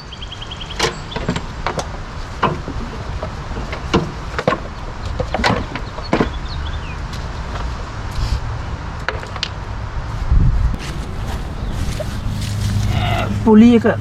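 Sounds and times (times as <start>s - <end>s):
low rumble: 10.2s - 14.0s.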